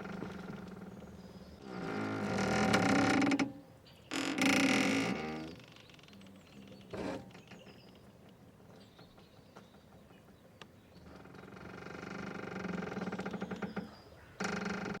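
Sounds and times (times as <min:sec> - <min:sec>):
rope creak: 0:00.0 - 0:07.6, 0:11.1 - 0:15.0.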